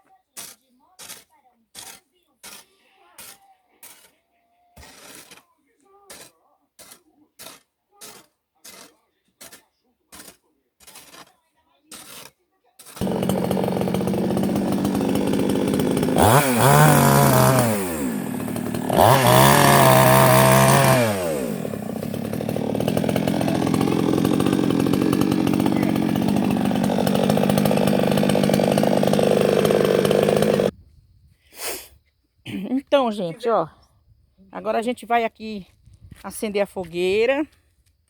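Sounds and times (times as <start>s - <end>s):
small two-stroke engine revving: 13.0s - 30.7s.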